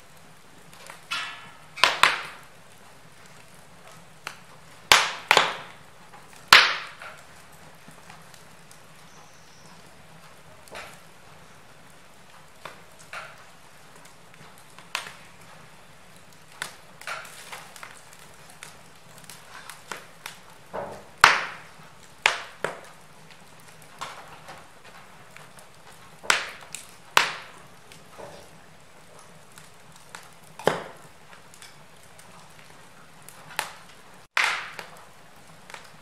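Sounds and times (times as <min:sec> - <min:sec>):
faint steady hiss: 0:00.0 - 0:36.0
wood fire crackling: 0:00.0 - 0:36.0
sharp pops: 0:04.3 - 0:05.8, 0:06.4 - 0:07.2, 0:33.6 - 0:35.0.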